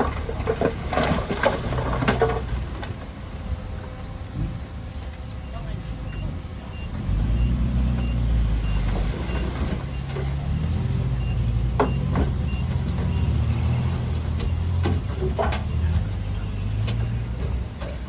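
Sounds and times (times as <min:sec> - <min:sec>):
heavy machinery diesel engine: 0:00.0 - 0:18.0
reversing alarm beeping: 0:05.3 - 0:17.1.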